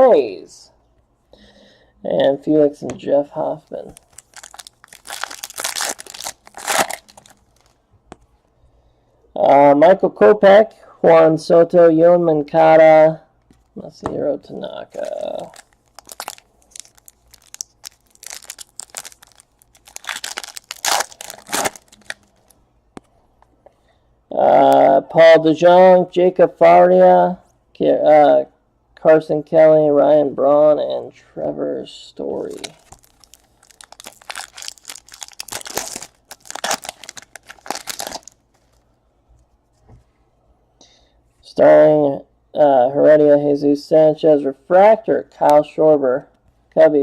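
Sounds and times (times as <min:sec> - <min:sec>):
card pack wrapper crinkling and tearing: 0:03.8 - 0:07.8, 0:14.9 - 0:22.6, 0:32.4 - 0:38.8.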